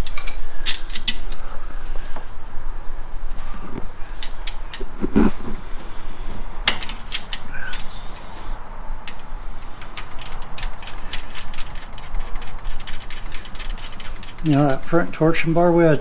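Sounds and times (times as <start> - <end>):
hand tools clicking and tapping: 0.0 - 1.4, 4.2 - 5.4, 6.6 - 8.0, 9.0 - 14.8.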